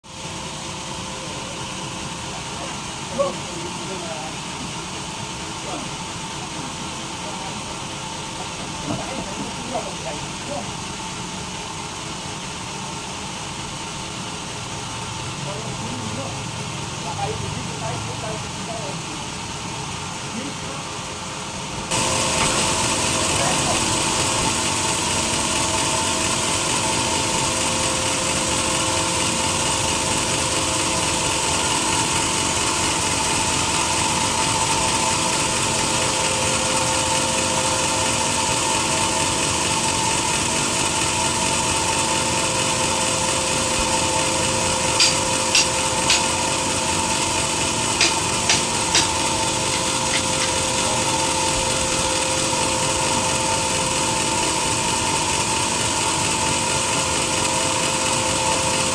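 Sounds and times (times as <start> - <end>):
motor hum: 20.9 - 58.9
sawmill saw cutting log: 21.9 - 58.9
sharp clicks: 45.0 - 46.3, 48.0 - 50.6.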